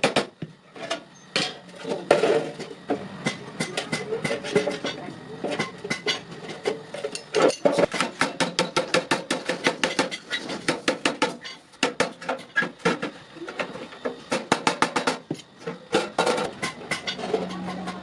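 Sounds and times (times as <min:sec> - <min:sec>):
hammer striking iron: 0:07.1 - 0:13.1.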